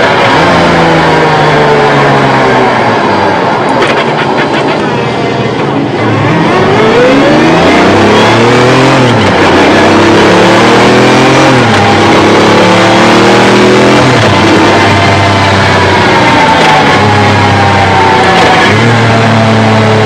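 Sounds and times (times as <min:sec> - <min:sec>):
engine exhaust accelerating hard: 0:00.0 - 0:20.0.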